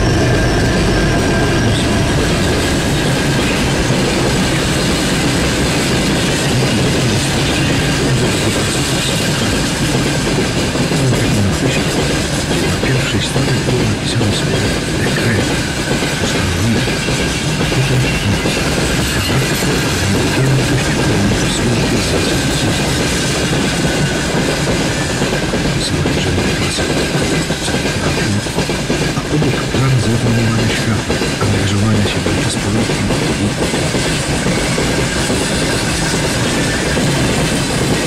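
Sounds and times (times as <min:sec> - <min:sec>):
freight train rolling past: 0:00.0 - 0:38.0.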